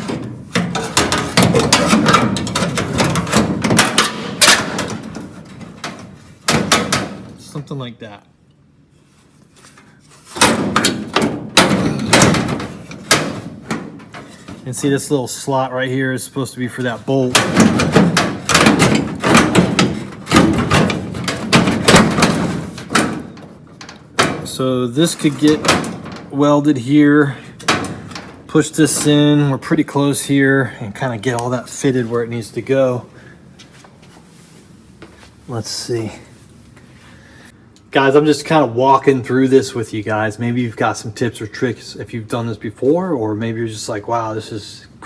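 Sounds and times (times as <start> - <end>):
metal part clanking and scraping: 0.0 - 7.0, 9.6 - 14.8.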